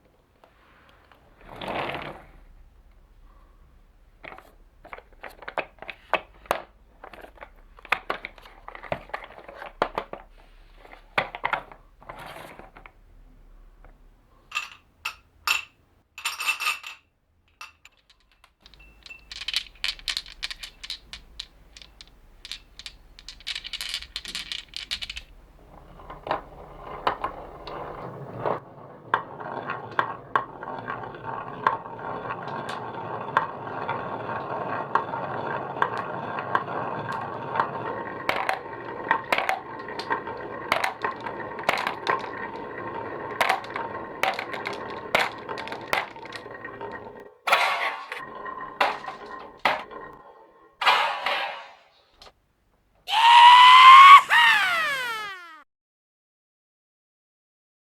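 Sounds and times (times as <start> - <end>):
marbles rolling rumble: 1.0 - 3.2, 4.0 - 13.2, 18.6 - 50.8
marbles clicking on a track: 17.9 - 47.3.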